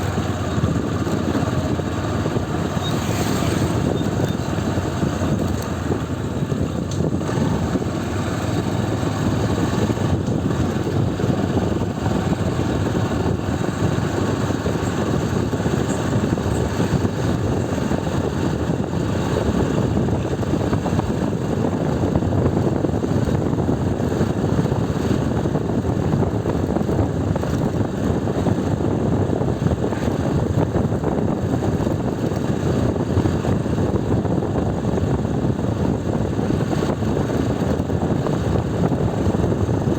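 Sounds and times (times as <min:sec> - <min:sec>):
motorcycle engine and road noise: 0:00.0 - 0:39.9.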